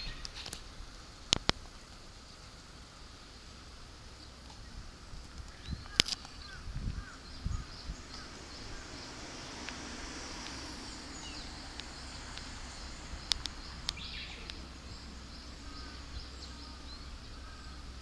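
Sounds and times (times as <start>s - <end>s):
small birds chirping: 0.0s - 0.7s, 1.3s - 18.0s
low background rumble: 0.0s - 18.0s
sharp clicks: 5.3s - 6.4s, 13.2s - 14.6s.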